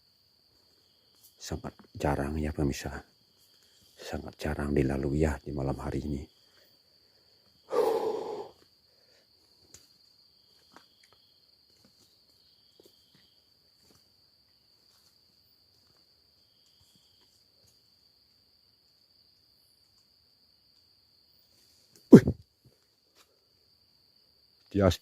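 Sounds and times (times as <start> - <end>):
high cricket trill: 0.0 - 25.0
lower insect call: 0.0 - 25.0
faint ticks: 9.6 - 10.1.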